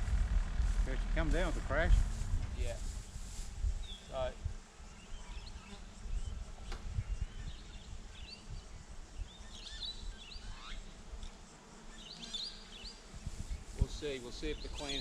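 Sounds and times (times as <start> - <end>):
low uneven rumble: 0.0 - 4.6
small birds chirping: 3.0 - 15.0.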